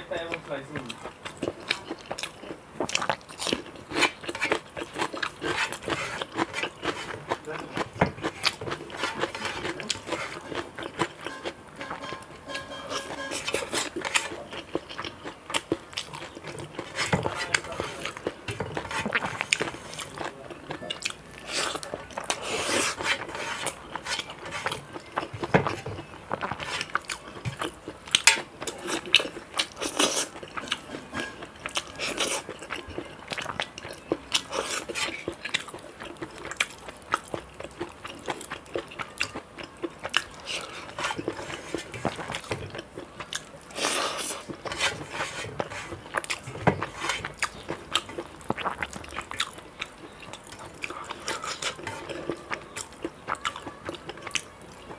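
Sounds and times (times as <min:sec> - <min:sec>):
person chewing crunchy food: 0:00.2 - 0:54.9.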